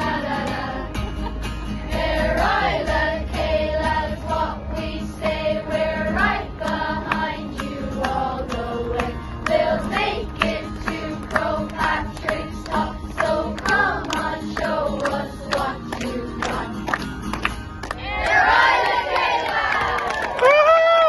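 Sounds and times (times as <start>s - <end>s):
children's choir singing: 0.0s - 1.0s, 1.9s - 16.8s, 18.0s - 19.9s.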